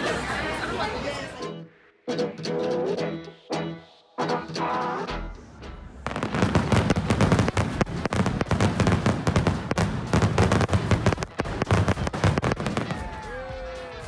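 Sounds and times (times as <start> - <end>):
fireworks bangs and crackles: 6.0 - 13.8.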